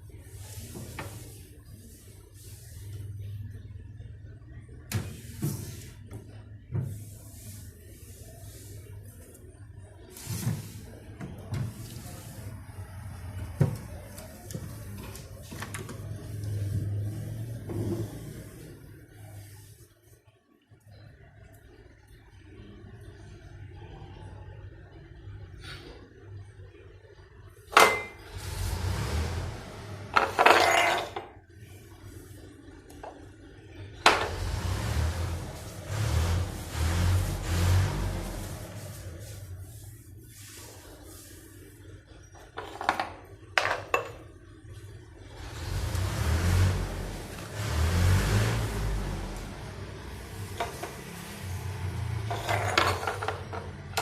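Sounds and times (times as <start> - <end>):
objects knocking and clattering: 30.1 - 31.3, 42.4 - 44.3, 52.1 - 54.0
dishes rattling: 30.2 - 31.3, 52.2 - 53.7.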